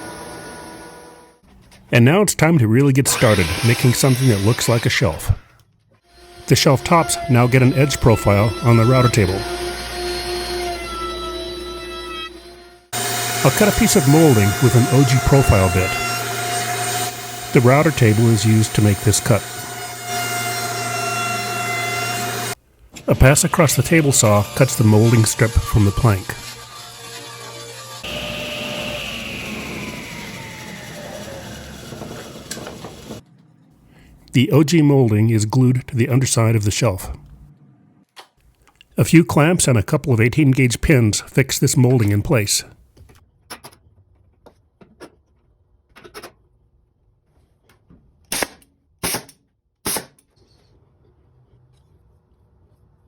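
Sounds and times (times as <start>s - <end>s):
table saw whine: 0.0s - 1.4s, 3.1s - 5.2s, 6.1s - 33.2s
nail gun shots: 48.3s - 50.3s.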